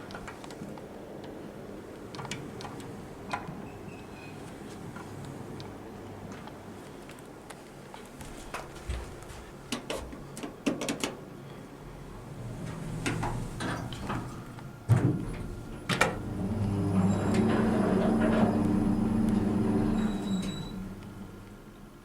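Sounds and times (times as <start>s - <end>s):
lift hum: 11.7s - 22.0s
lift doors thudding: 12.2s - 21.4s.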